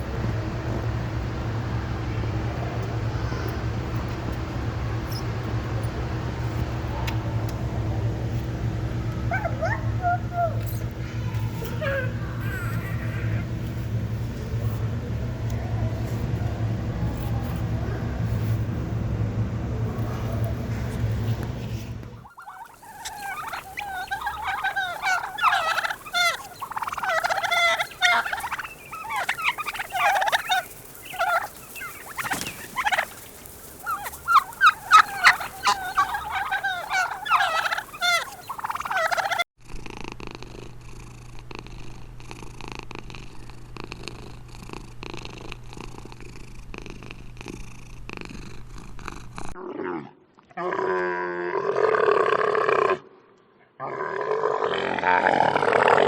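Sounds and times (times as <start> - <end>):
low steady hum: 0.0 - 51.5
bird warbling calls: 22.2 - 39.5.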